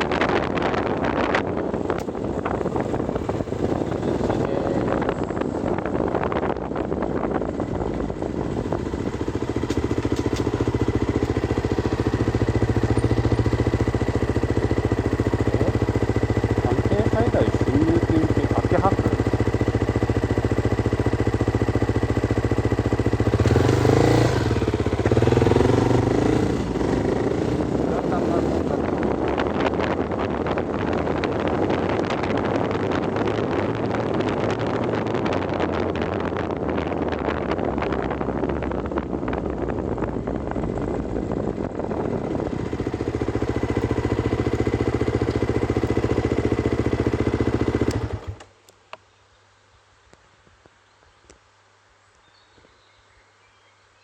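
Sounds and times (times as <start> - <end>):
motorcycle engine idling and revving: 0.0 - 48.8.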